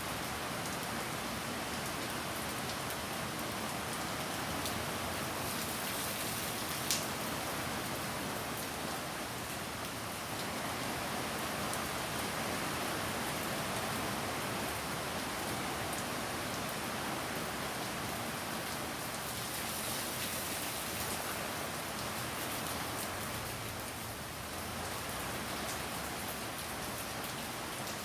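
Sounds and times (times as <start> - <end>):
heavy rain hiss: 3.7 - 9.5, 10.1 - 26.2.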